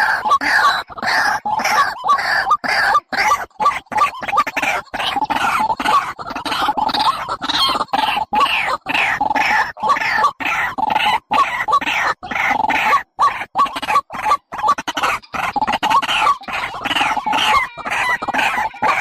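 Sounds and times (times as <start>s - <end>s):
recorded harsh bird calls: 0.0s - 19.0s.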